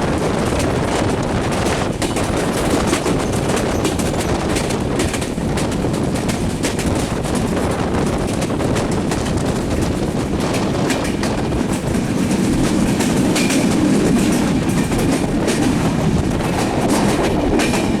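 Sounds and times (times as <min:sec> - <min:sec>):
train wheels clattering over rail joints: 0:00.0 - 0:18.0.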